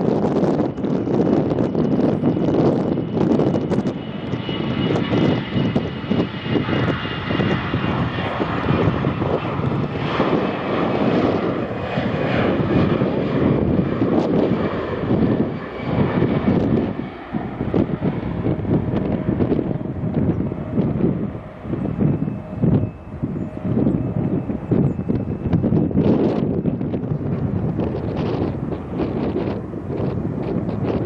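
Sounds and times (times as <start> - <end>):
jet engines running: 0.0 - 31.0
wind buffeting microphone: 0.0 - 31.0
faint high whine: 21.5 - 26.2.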